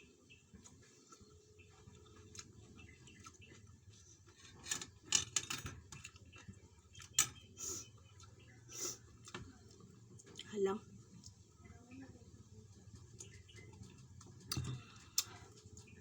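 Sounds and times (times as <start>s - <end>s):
chewing smacks and clicks: 13.0s - 16.0s.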